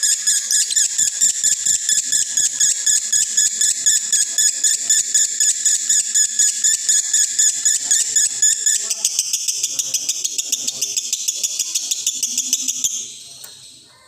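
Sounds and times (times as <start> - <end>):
bird chattering trill: 0.0 - 14.0.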